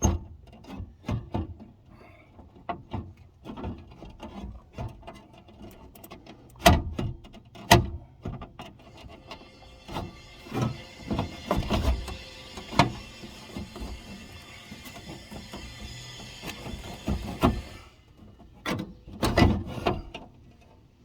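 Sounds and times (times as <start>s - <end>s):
tools clunking in car door: 17.1s - 20.4s.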